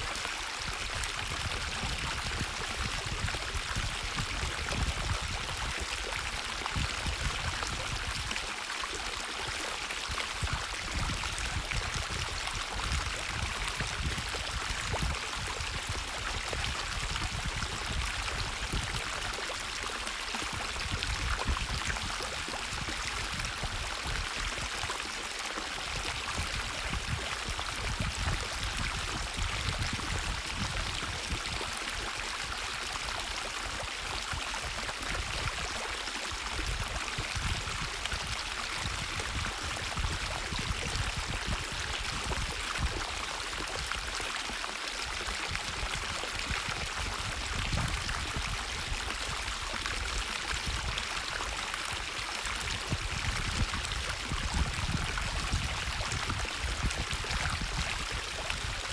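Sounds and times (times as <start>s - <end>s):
water rushing in a stream: 0.0s - 58.9s.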